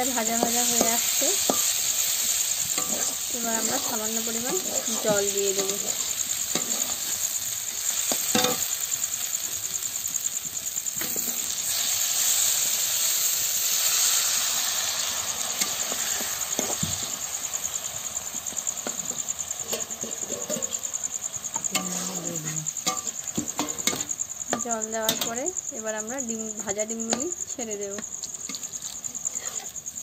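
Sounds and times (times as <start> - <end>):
spatula scraping and tapping pan: 0.0 - 7.3, 8.0 - 8.7, 18.8 - 20.8, 21.5 - 25.4, 26.6 - 29.8
vegetables sizzling in oil: 0.0 - 30.0.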